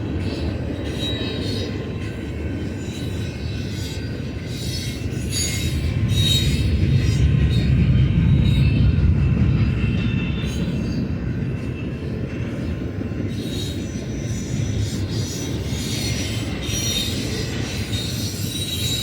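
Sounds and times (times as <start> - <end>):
freight train wheels rumbling: 0.0 - 19.0
high-pitched wheel squeal: 13.4 - 19.0.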